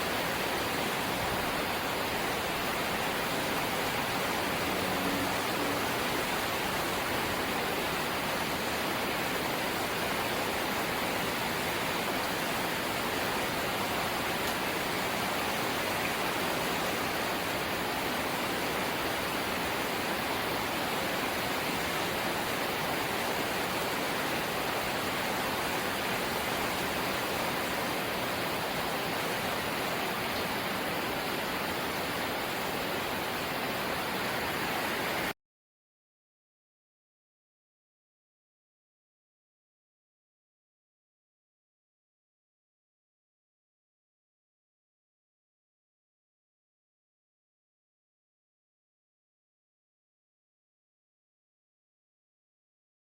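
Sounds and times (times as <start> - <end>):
rain on a tin roof: 0.0 - 35.4.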